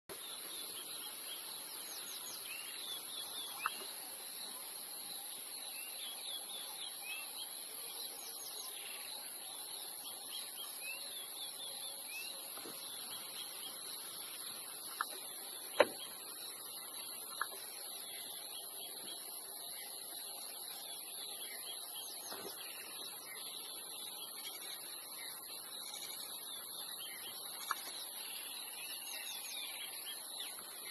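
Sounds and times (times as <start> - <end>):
small birds chirping: 0.1 - 30.9
steady high-pitched hiss: 0.1 - 30.9.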